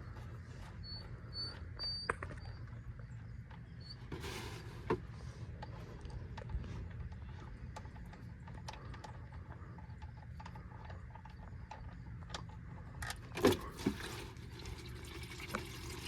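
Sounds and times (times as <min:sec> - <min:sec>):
oil pouring into pan: 0:13.6 - 0:16.0.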